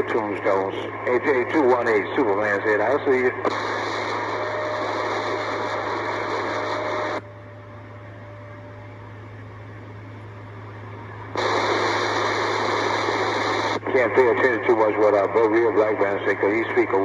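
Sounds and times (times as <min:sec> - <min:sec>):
radio static hiss: 0:00.0 - 0:07.2, 0:10.8 - 0:17.0
steady low hum: 0:00.0 - 0:17.0.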